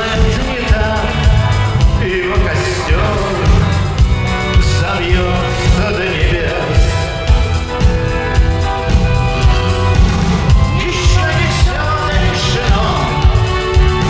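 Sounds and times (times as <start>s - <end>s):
person singing: 0.0s - 8.8s, 9.6s - 14.0s
drums steady beat: 0.0s - 14.0s
rock band playing: 0.0s - 14.0s.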